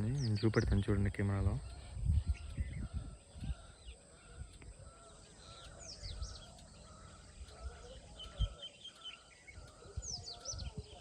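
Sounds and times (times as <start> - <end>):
wild birds chirping: 0.0 - 11.0.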